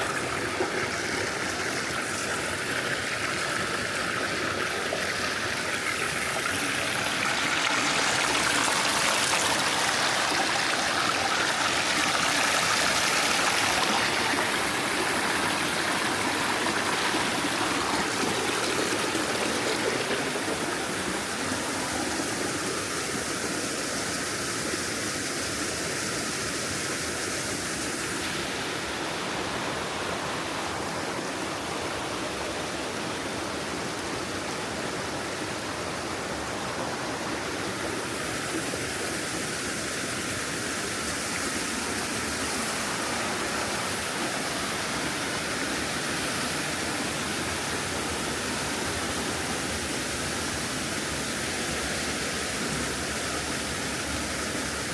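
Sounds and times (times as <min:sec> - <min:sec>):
mountain stream rushing: 0:00.0 - 0:54.9.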